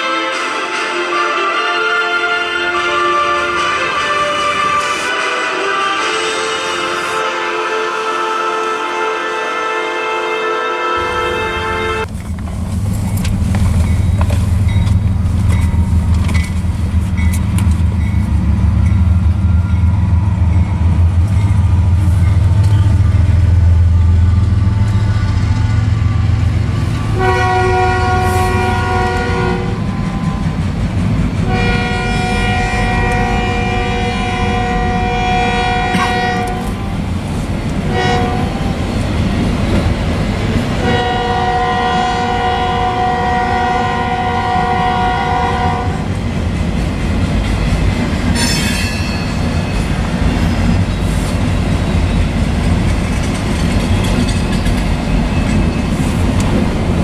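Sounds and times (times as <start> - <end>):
train horn blasts: 0.0 - 12.1, 22.2 - 30.6, 31.4 - 37.0, 37.8 - 38.9, 40.8 - 46.2
freight train rumbling past: 0.0 - 57.0.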